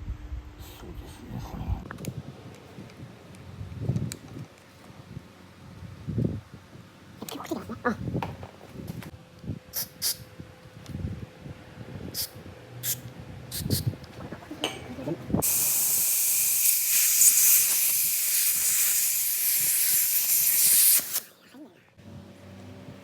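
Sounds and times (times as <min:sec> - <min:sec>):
loud hiss of pressurised spray: 0:15.4 - 0:21.3.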